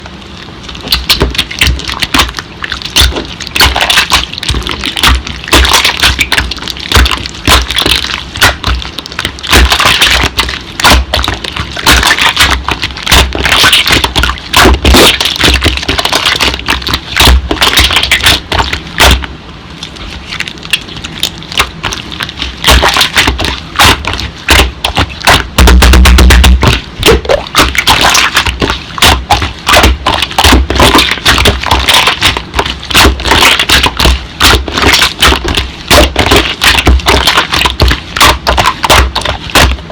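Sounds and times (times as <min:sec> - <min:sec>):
slime clicking and crackling: 0:00.6 - 0:39.9.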